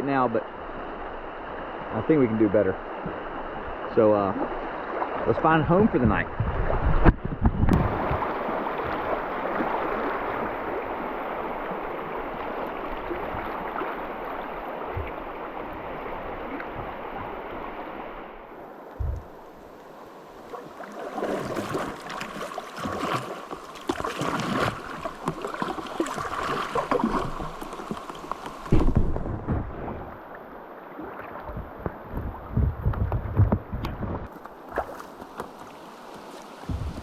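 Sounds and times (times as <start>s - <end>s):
river water splashing: 0.4s - 7.1s, 7.7s - 32.6s, 34.2s - 37.0s
wind buffeting microphone: 5.7s - 8.9s, 19.0s - 19.4s, 31.4s - 34.3s, 36.6s - 37.0s.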